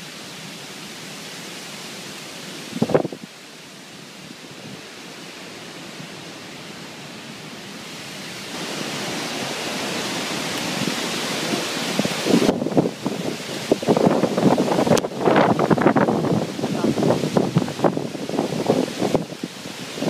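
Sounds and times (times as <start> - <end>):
storm wind rushing: 2.6 - 3.3, 7.8 - 20.0
wind buffeting microphone: 2.7 - 3.3, 8.5 - 20.0.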